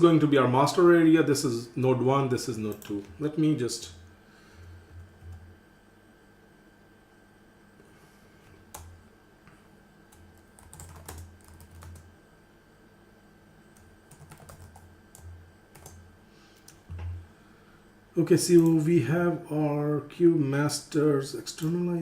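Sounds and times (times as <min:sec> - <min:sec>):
computer keyboard typing: 0:02.6 - 0:03.1, 0:08.7 - 0:08.9, 0:10.1 - 0:12.1, 0:13.8 - 0:16.0, 0:18.5 - 0:18.8.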